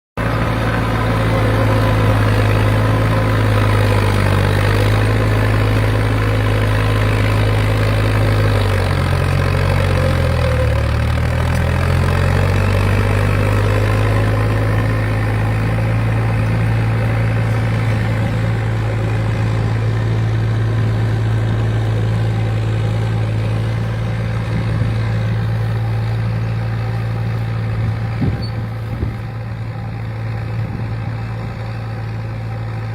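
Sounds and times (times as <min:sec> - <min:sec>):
diesel engine running: 0:00.2 - 0:32.9.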